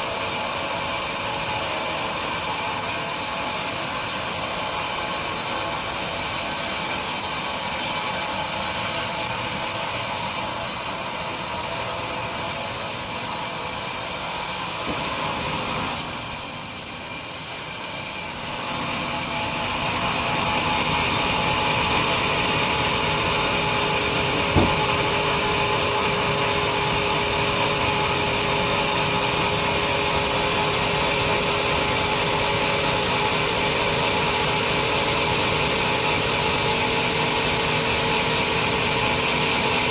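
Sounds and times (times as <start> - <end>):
bandsaw sawing through log: 0.0 - 28.6
knock: 24.3 - 25.2.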